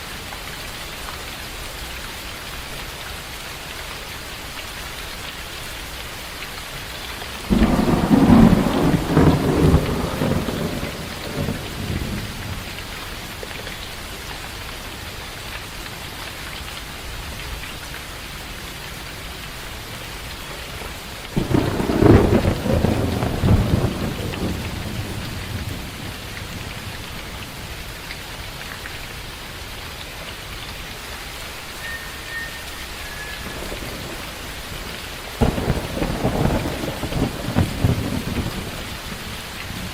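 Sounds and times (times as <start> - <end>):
steady rain falling: 0.0 - 39.9
thunder rumbling: 7.5 - 12.9, 21.3 - 27.7, 31.8 - 39.9.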